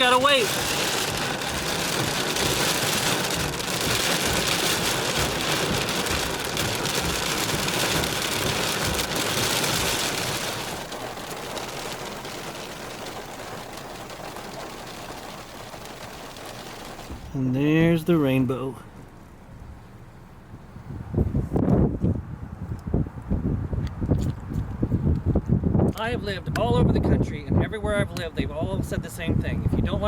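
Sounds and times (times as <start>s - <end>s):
heavy rain on car roof: 0.0s - 18.4s.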